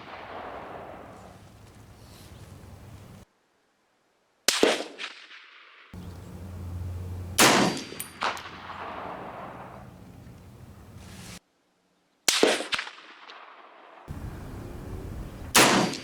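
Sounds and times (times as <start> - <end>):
rifle shots with ringing echo: 0.0 - 1.5, 7.0 - 10.6, 12.3 - 16.0.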